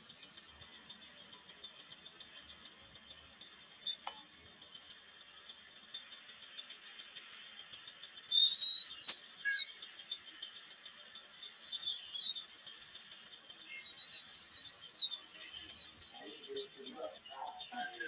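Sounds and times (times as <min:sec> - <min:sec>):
bird whistled calls: 0:03.8 - 0:04.3, 0:08.3 - 0:10.3, 0:11.2 - 0:12.5, 0:13.6 - 0:18.0
sharp click: 0:08.9 - 0:09.5.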